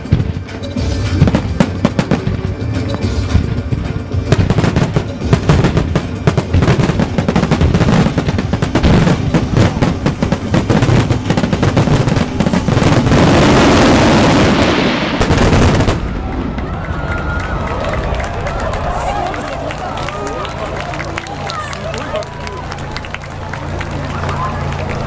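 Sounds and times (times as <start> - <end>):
fireworks bursting: 0.0 - 18.2.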